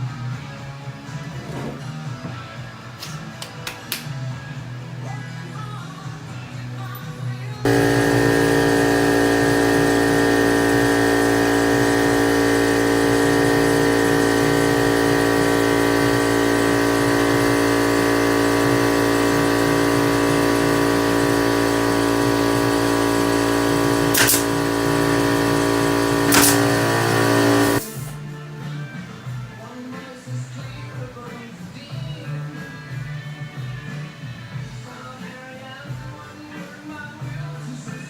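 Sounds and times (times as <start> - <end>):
small electric motor whining: 7.7 - 28.1
sharp clicks: 24.1 - 24.6, 26.3 - 27.2.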